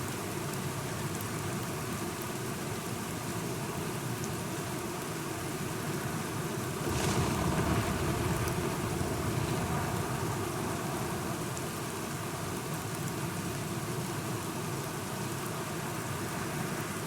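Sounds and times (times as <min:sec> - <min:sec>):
steady rain: 0:00.0 - 0:17.0
low thunder rumble: 0:06.8 - 0:11.9.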